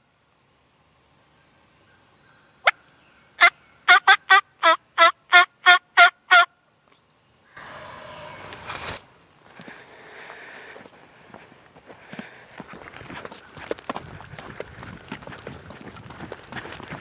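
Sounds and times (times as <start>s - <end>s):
turkey clucking and yelping: 3.4s - 6.5s
rustle of brush or leaves: 7.5s - 17.0s.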